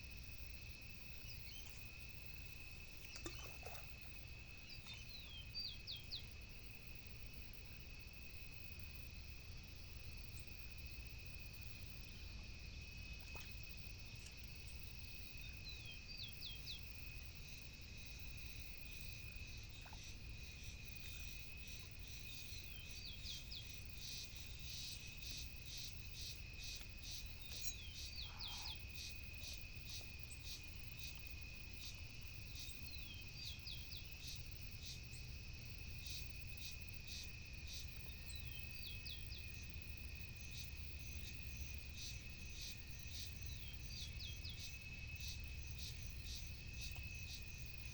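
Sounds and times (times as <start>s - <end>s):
insects chirping: 0.0s - 47.9s
small bird chirping: 21.0s - 30.6s.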